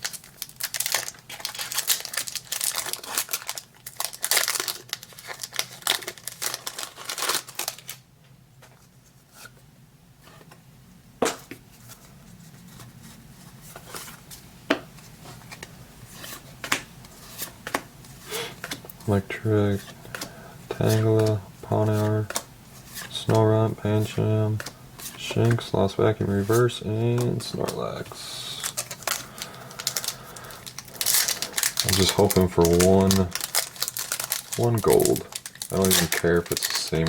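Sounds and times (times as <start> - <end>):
foil wrapper crinkling and tearing: 0.0 - 8.0, 27.2 - 37.0.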